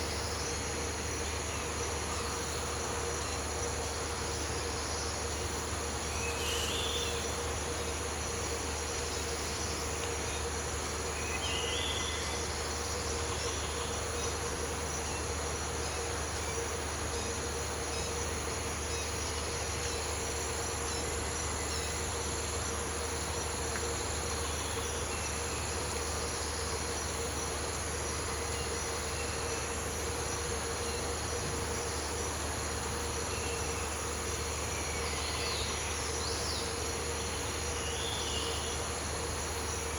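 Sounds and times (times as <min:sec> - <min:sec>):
rainforest insects droning: 0:00.0 - 0:39.9.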